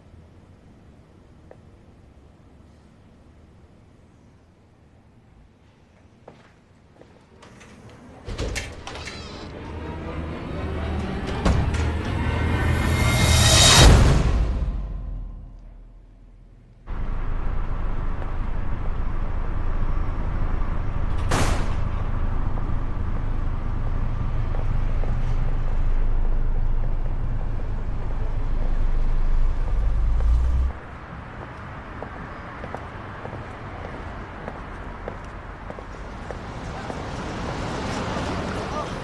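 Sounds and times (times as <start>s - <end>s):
vehicle low rumble: 7.3s - 39.0s
sharp bang: 21.2s - 22.1s.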